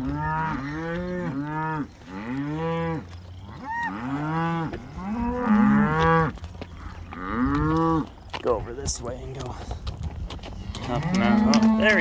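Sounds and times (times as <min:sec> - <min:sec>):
cows mooing: 0:00.0 - 0:08.2, 0:10.6 - 0:12.0.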